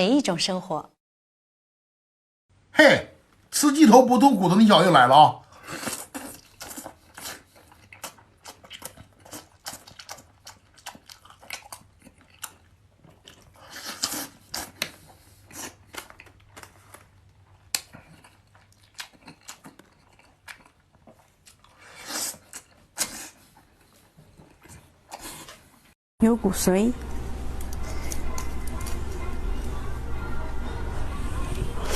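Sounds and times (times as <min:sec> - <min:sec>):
crunchy chewing: 0:05.5 - 0:25.8, 0:27.6 - 0:29.8.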